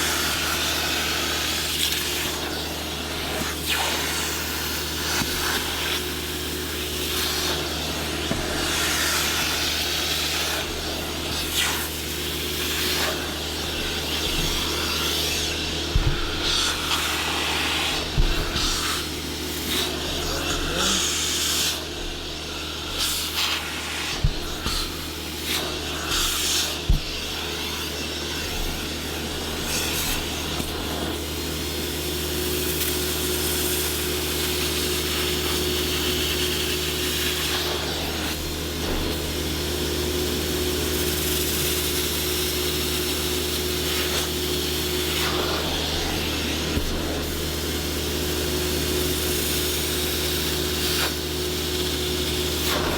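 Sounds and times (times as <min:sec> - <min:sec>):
cleaning tool motor humming: 0:00.0 - 0:52.9
brushing and rubbing: 0:12.6 - 0:30.6.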